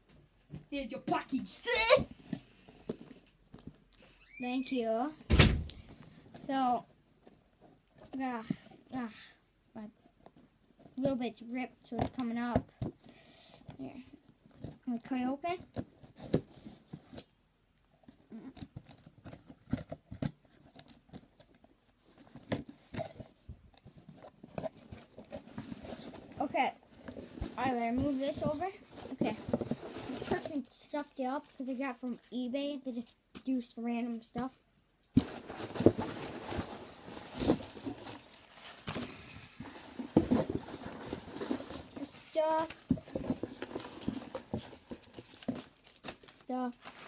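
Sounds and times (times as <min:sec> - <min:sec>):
packaging rustling: 0:18.4 - 0:31.7, 0:35.2 - 0:47.0.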